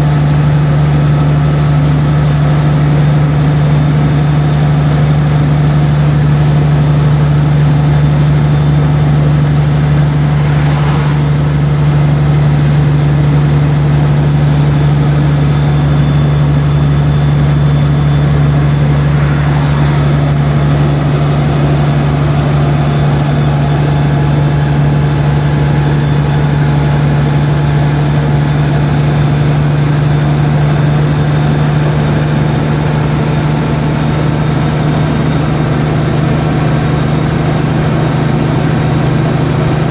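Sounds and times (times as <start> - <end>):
road noise: 0.0 - 39.9
vehicle engine drone: 0.0 - 39.9.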